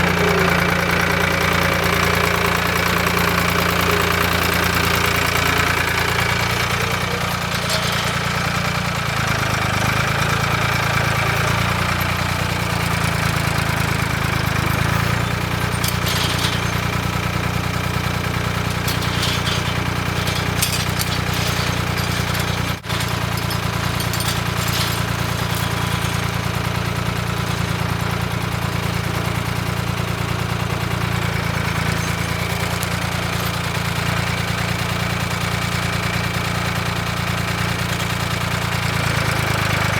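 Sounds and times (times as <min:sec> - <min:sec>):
light clanks: 0:00.0 - 0:29.6, 0:31.2 - 0:36.2
engine running steadily: 0:00.0 - 0:39.9.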